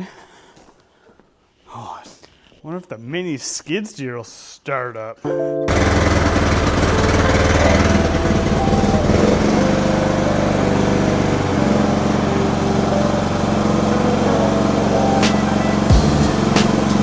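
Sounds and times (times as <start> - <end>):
small engine running: 5.7 - 17.0.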